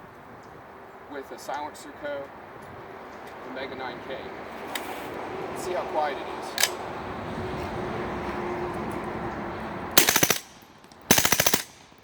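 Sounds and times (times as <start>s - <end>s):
steady background noise: 0.0s - 12.0s
suppressed automatic gunfire bursts: 10.0s - 12.0s.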